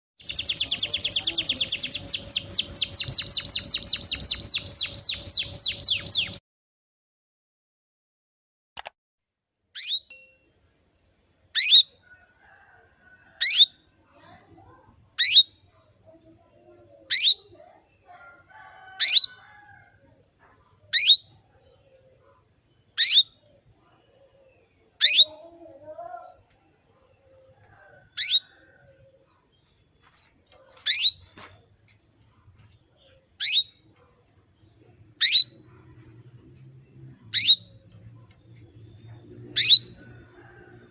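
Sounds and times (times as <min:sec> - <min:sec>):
canary chirping: 0:00.2 - 0:06.4, 0:09.8 - 0:10.1, 0:11.6 - 0:11.9, 0:15.1 - 0:15.7, 0:17.0 - 0:19.4, 0:20.9 - 0:22.3, 0:22.9 - 0:23.4, 0:25.0 - 0:25.4, 0:27.3 - 0:28.6, 0:30.5 - 0:31.4, 0:33.4 - 0:34.0, 0:35.0 - 0:40.8.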